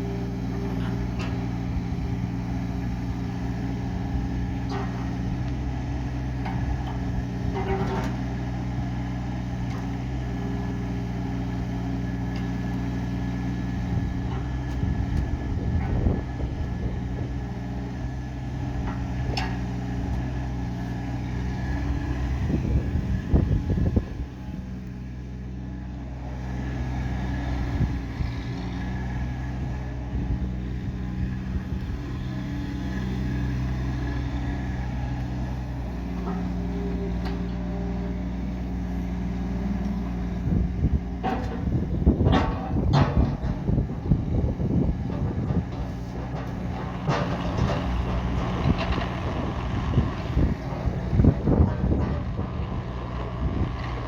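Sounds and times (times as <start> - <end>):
excavator diesel engine running: 0.0 - 54.0
rattling and clanking: 40.7 - 44.1, 44.8 - 54.0.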